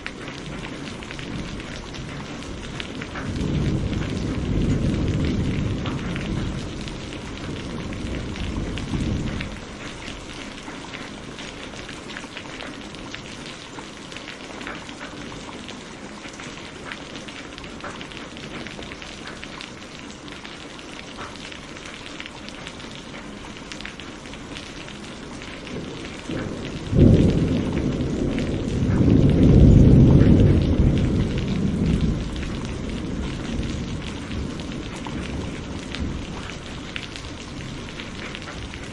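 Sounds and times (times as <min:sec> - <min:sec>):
thunder rumble: 0:00.0 - 0:11.8, 0:24.7 - 0:38.9
steady rain hiss: 0:00.0 - 0:38.9
loud thunder clap: 0:01.2 - 0:09.6, 0:25.7 - 0:36.5.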